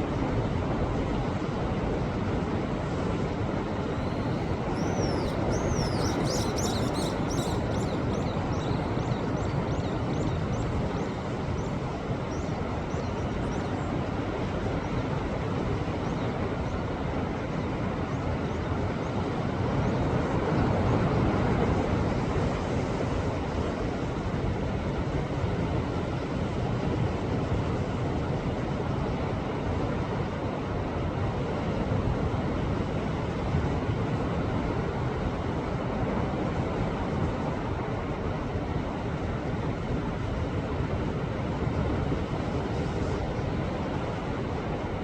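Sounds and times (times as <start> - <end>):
bird calling: 3.9 - 13.8.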